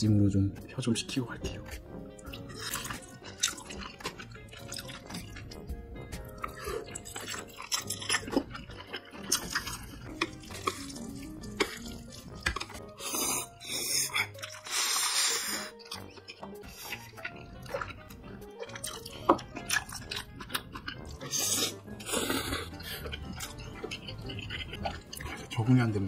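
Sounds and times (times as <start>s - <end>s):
wet chewing and mouth clicks: 1.5s - 25.6s
noodle slurp: 9.1s - 15.8s, 19.8s - 25.5s.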